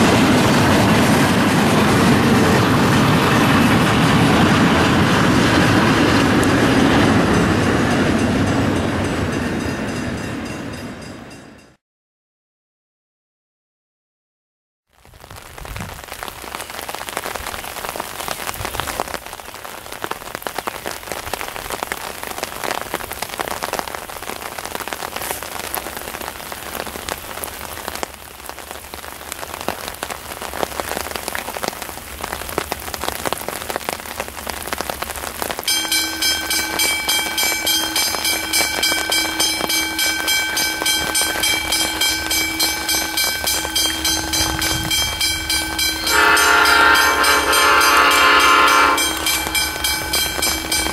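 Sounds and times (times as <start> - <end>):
rain falling: 0.0 - 7.3, 14.9 - 50.9
level crossing warning bell: 35.7 - 50.9.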